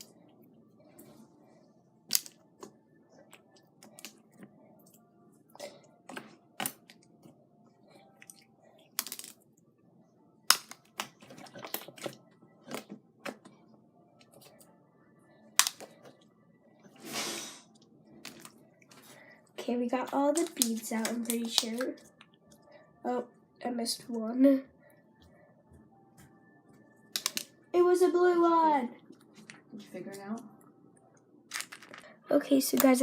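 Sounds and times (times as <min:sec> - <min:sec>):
plastic beads clicking: 0:08.9 - 0:09.4, 0:27.1 - 0:27.5, 0:31.5 - 0:32.0.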